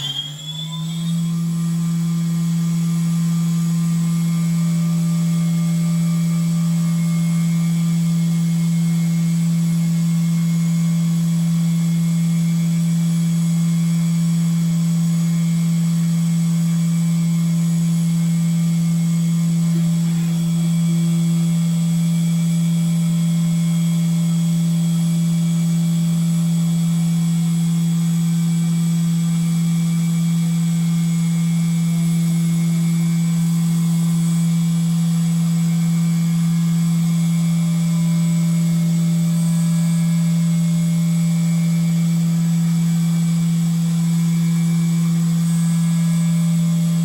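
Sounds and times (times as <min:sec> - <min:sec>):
milling machine spindle humming: 0:00.0 - 0:11.3, 0:13.8 - 0:23.9.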